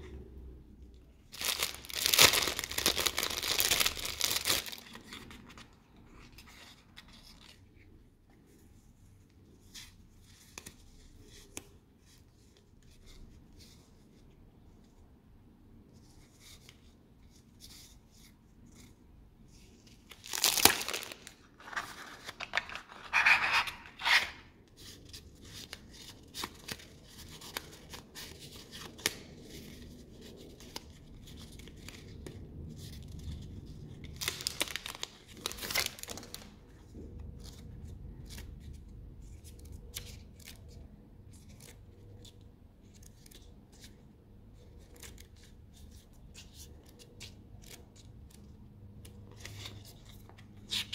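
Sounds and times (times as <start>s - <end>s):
packaging crinkling and rustling: 1.3s - 7.6s, 20.0s - 24.5s, 34.0s - 36.8s
packaging tearing: 1.4s - 5.0s, 20.1s - 24.3s, 34.2s - 36.5s.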